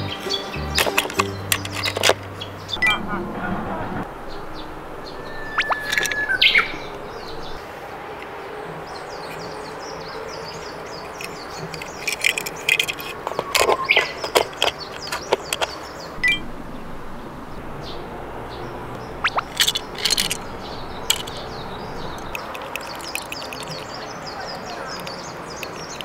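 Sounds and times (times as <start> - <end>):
small birds chirping: 0.0 - 3.0, 4.0 - 26.0
sharp clicks and clacks: 11.1 - 16.4, 19.2 - 26.0.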